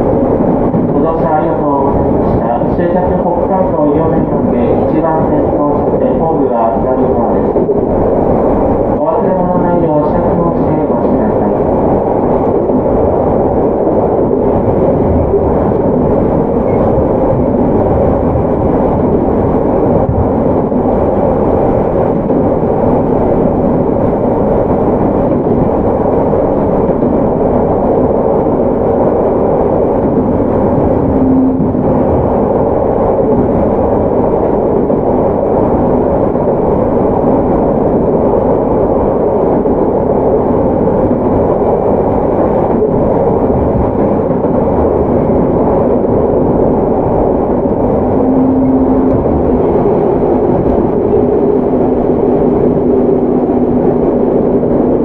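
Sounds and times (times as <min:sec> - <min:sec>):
train car body rumbling: 0:00.0 - 0:03.3, 0:10.6 - 0:55.0
train wheels on rails: 0:00.0 - 0:55.0
short low tone: 0:31.0 - 0:31.8, 0:48.2 - 0:49.8.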